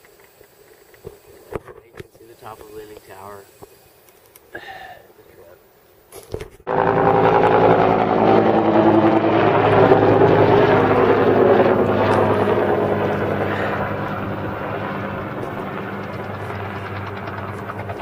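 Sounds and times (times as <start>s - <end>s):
helicopter rotor beating: 6.7s - 18.0s.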